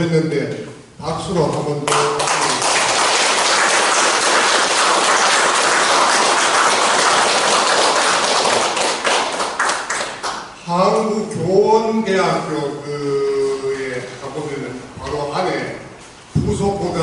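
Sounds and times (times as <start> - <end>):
audience applauding: 1.9 - 10.6.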